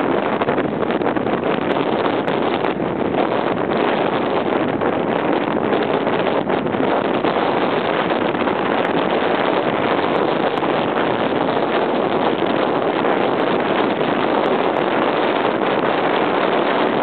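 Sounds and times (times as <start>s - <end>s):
strong wind on microphone: 0.0s - 17.0s.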